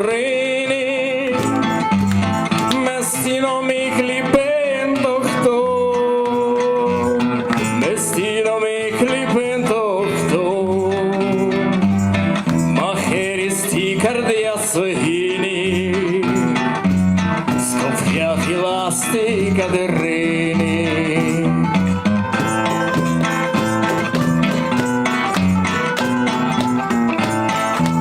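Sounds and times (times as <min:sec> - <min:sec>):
acoustic guitar playing: 0:00.0 - 0:28.0
held melody with vibrato: 0:17.8 - 0:28.0.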